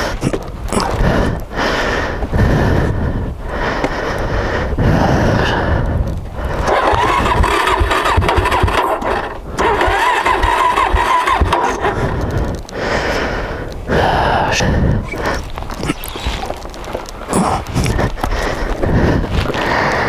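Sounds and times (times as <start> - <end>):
electric starter cranking engine: 6.5 - 12.7.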